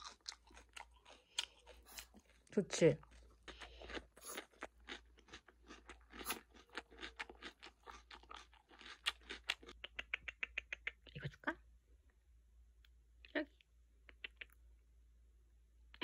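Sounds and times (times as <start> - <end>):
person chewing crisp vegetable: 0.0 - 11.3.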